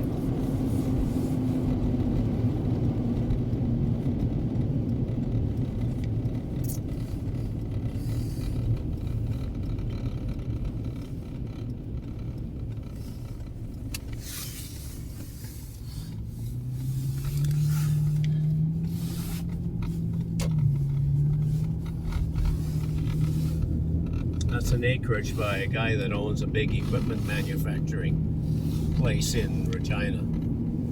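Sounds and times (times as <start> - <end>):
engine hum: 0.0 - 30.9
road and engine rumble: 0.0 - 30.9.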